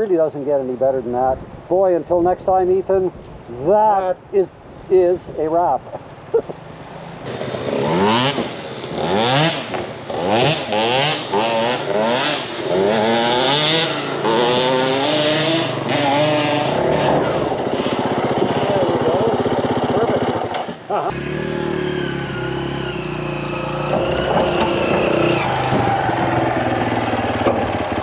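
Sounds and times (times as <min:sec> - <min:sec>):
dirt bike engine revving: 0:07.3 - 0:28.0.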